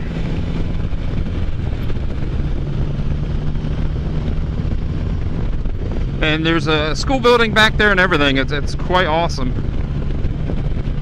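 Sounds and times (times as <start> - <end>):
engine running at cruising speed: 0.0 - 11.0
wind noise on microphone: 0.0 - 11.0.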